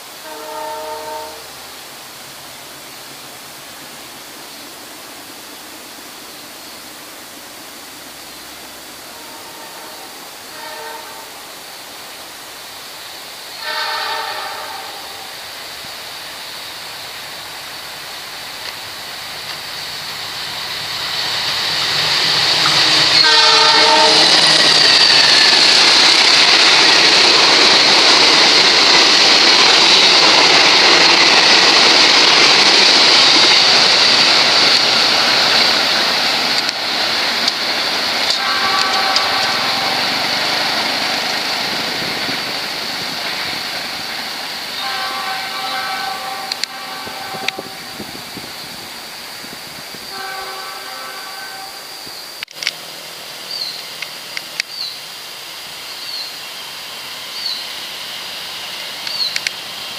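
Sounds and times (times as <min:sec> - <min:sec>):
train wheels rushing on rail: 0:00.0 - 0:59.9
locomotive horn blasts: 0:00.1 - 0:01.6, 0:09.1 - 0:11.5, 0:13.6 - 0:15.3, 0:22.6 - 0:25.0, 0:38.3 - 0:40.2, 0:44.8 - 0:48.2, 0:50.0 - 0:52.0.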